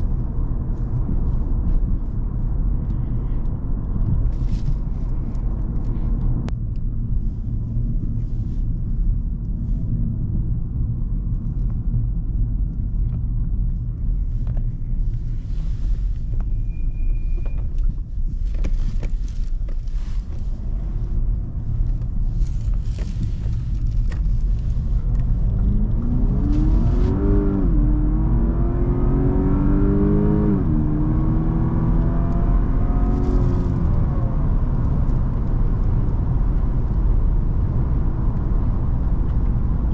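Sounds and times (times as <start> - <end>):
car engine accelerating: 11.6 - 39.9.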